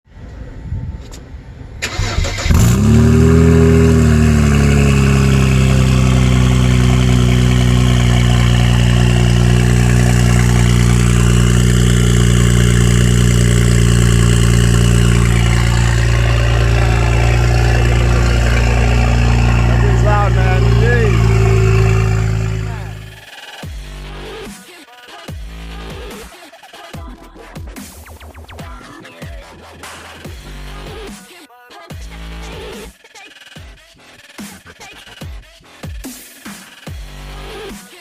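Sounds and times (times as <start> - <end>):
car engine starting and idling: 1.0 - 23.3.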